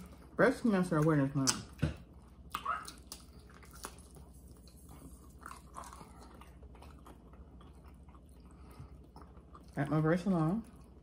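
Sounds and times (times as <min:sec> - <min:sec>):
people chewing: 0:01.0 - 0:11.0.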